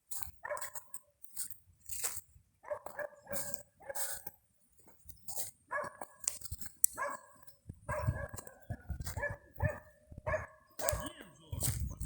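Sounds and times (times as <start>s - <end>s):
dog barking: 0.4s - 0.8s, 2.6s - 4.1s, 5.7s - 6.2s, 7.0s - 11.2s.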